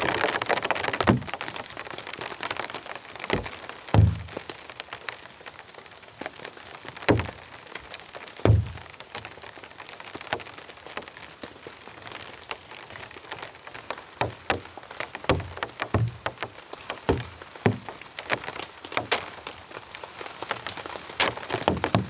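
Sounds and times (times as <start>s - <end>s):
rain patter in forest: 0.0s - 22.0s
heavy dull drop thuds: 1.0s - 1.4s, 3.4s - 4.5s, 7.1s - 7.4s, 8.5s - 8.9s, 15.3s - 16.5s, 17.1s - 17.9s.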